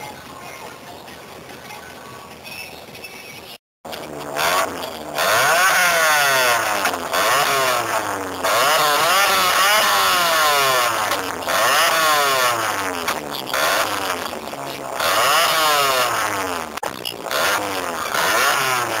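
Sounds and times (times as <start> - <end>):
car engine revving: 3.9 - 19.0.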